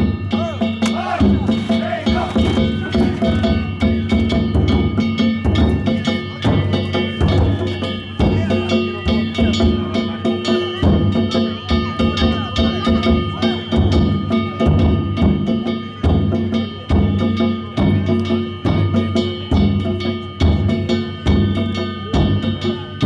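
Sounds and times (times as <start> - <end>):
metal gongs ringing: 0.0 - 13.1
taiko drum beaten in quick rhythm: 0.0 - 23.0.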